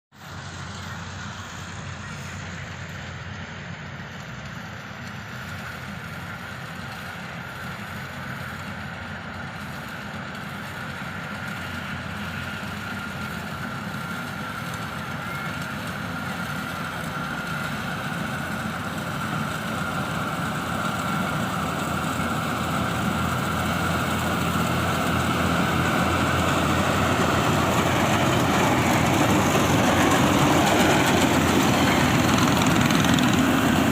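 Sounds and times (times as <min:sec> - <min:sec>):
combine harvester engine hum: 0:00.2 - 0:33.9
high machine whine: 0:10.4 - 0:33.9.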